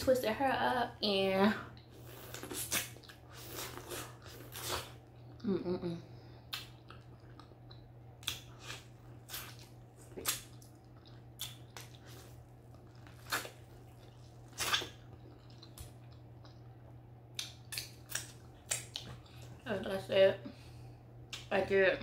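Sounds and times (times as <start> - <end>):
low steady hum: 0.0 - 22.0
chewing corn on the cob: 6.5 - 19.6.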